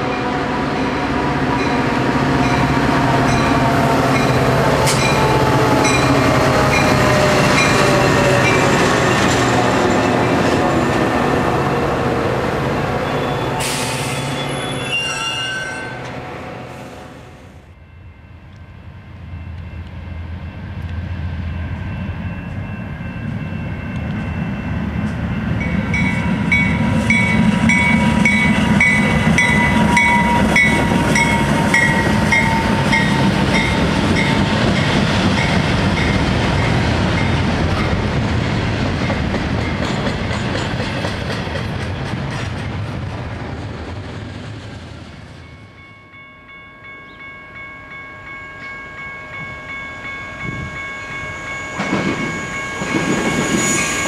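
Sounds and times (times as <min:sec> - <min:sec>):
freight train engine and wheel rumble: 0:00.0 - 0:54.0
pulsing ringing tone: 0:45.6 - 0:54.0.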